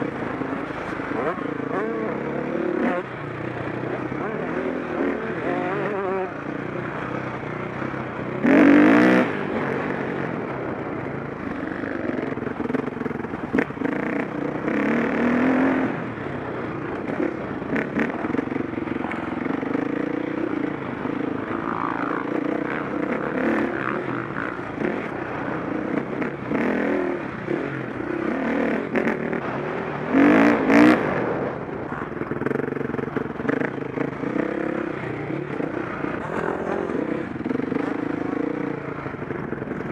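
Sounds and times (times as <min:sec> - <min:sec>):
motorcycle engine under throttle: 0:00.0 - 0:39.9.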